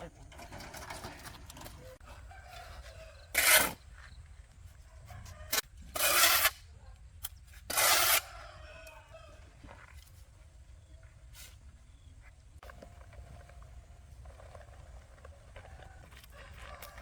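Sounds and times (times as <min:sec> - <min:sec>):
chickens: 0:15.1 - 0:17.0.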